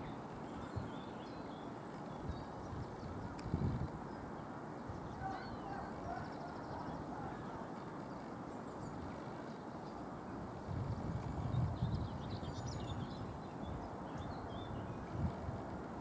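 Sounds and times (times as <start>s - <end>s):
faint bird calls: 5.0s - 8.2s.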